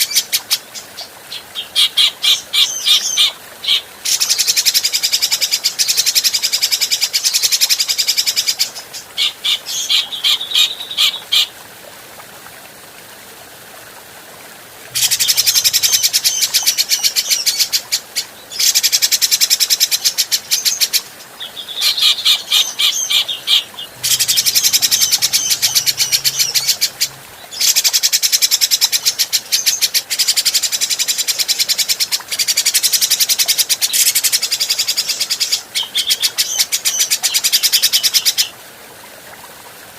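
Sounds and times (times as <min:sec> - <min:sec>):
bird chattering song: 0:15.0 - 0:17.8, 0:19.7 - 0:29.8.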